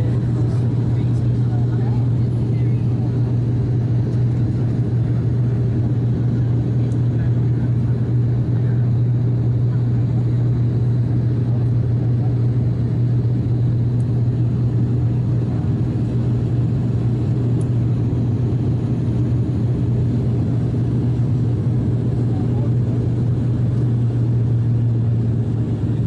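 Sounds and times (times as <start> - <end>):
turboprop engines droning in cabin: 0.0 - 26.0.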